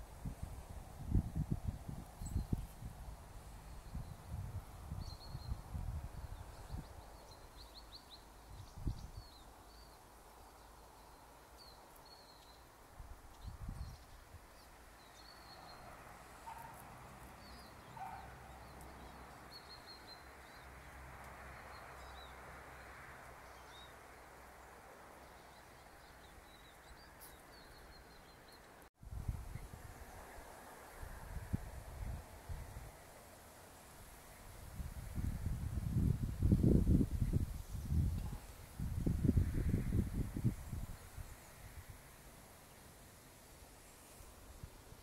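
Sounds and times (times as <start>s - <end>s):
faint steady hiss: 0.0s - 45.0s
small birds chirping: 2.0s - 22.4s, 23.4s - 28.9s.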